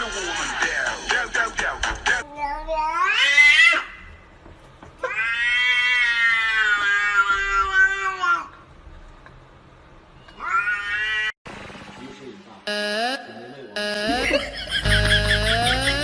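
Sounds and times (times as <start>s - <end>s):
cat meowing: 10.4s - 11.3s.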